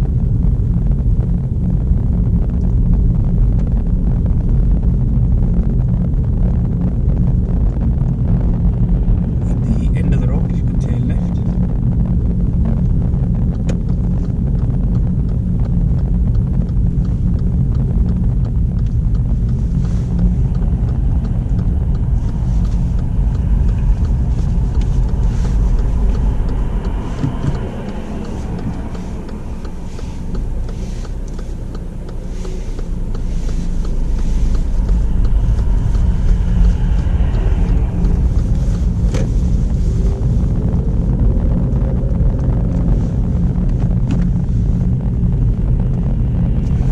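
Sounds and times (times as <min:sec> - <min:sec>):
car engine and road rumble: 0:00.0 - 0:46.9.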